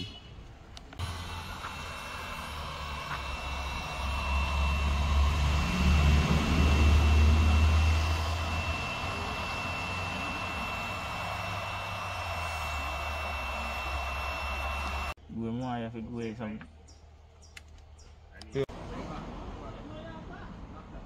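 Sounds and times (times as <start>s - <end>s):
compactor engine running: 0.9s - 15.2s
thin high tone: 1.0s - 15.2s.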